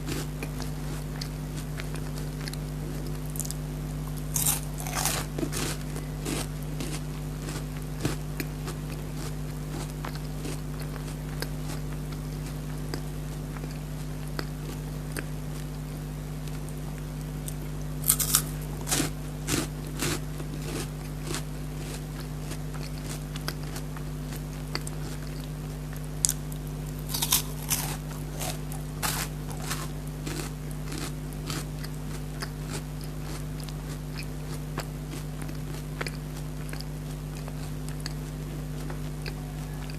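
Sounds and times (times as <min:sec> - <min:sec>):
crunching bites and chewing: 0:00.0 - 0:15.7, 0:17.4 - 0:39.9
low hum: 0:24.5 - 0:39.9.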